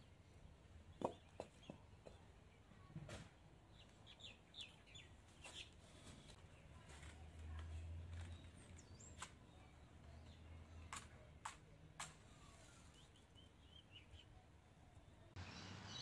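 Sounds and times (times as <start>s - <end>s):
faint bird chirps: 12.2s - 16.0s.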